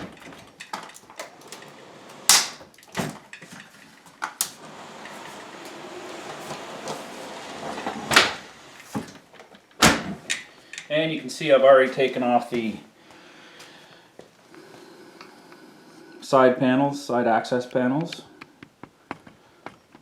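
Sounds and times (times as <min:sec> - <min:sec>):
dishwasher scraping as it slides: 0:04.6 - 0:09.2.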